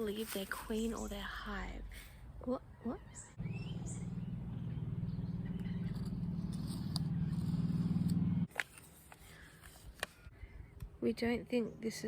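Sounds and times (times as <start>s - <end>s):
low steady buzzing: 3.4s - 8.5s.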